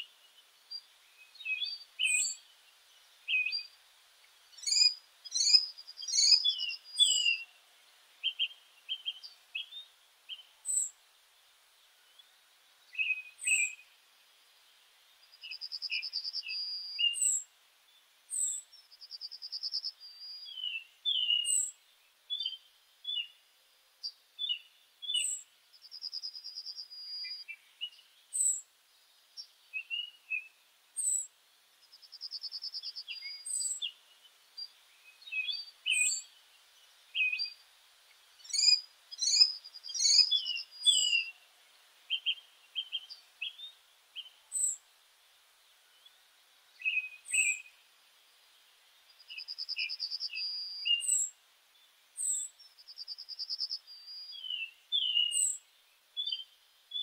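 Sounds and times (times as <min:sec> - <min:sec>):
bird trill: 0:04.6 - 0:07.5, 0:18.3 - 0:21.7, 0:35.2 - 0:36.3, 0:38.4 - 0:41.4, 0:44.2 - 0:44.8, 0:46.8 - 0:47.7, 0:49.3 - 0:51.3, 0:52.2 - 0:55.6
birds chirping and calling: 0:04.6 - 0:07.5, 0:33.2 - 0:33.9, 0:35.2 - 0:36.3, 0:38.4 - 0:41.4, 0:44.2 - 0:44.8, 0:46.8 - 0:47.6, 0:54.4 - 0:55.6.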